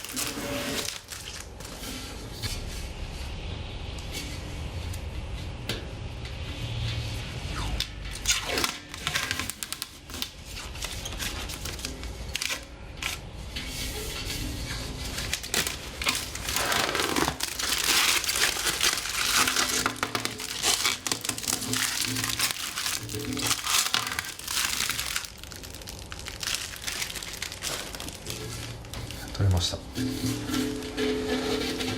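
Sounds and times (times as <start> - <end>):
plastic film crinkling and tearing: 0.0 - 1.9, 8.2 - 13.3, 15.0 - 29.3.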